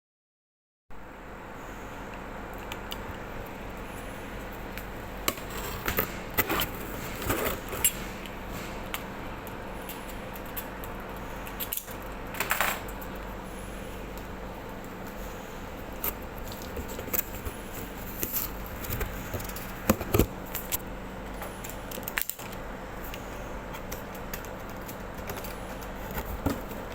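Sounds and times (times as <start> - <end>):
steady low hum: 0.9 - 26.9
packaging clicks taps and rustles: 21.6 - 26.9.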